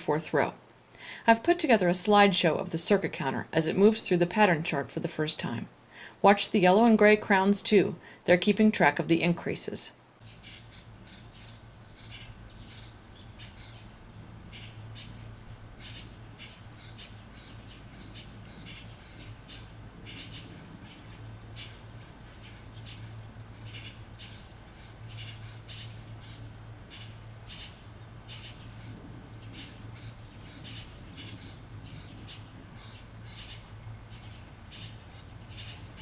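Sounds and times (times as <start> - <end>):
birds chirping: 0.0 - 36.0
steady low hum: 10.0 - 36.0.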